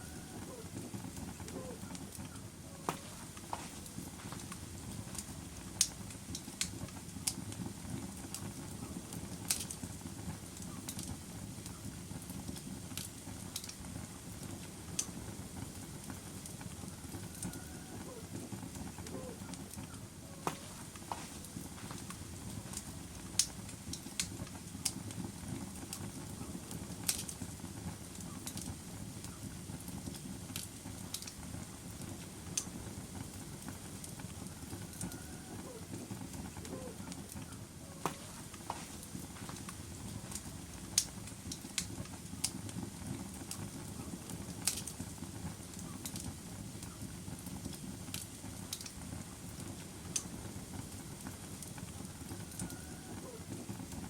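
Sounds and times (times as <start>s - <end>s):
fire crackling and popping: 0.0s - 54.0s
fire flame rushing: 0.0s - 54.0s.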